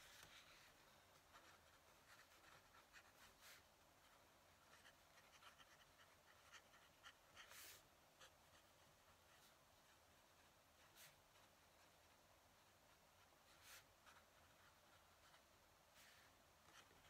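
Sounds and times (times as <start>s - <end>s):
pen nib scratching on paper: 0.1s - 17.0s.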